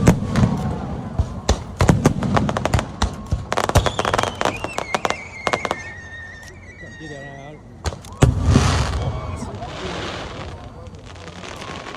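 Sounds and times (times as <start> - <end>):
descending firework whistle: 0.0 - 11.9
fireworks bangs and crackling: 0.0 - 11.9.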